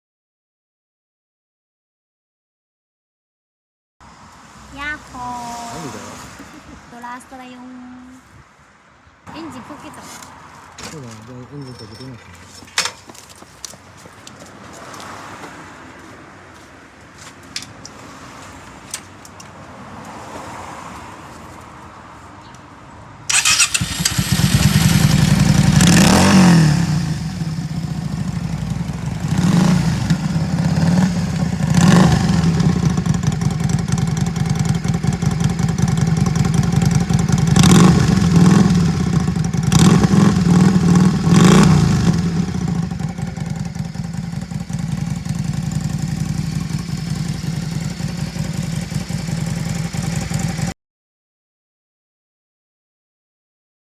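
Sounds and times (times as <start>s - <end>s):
motorcycle engine idling loudly: 23.3s - 50.7s
motorcycle throttle blips: 23.3s - 50.7s.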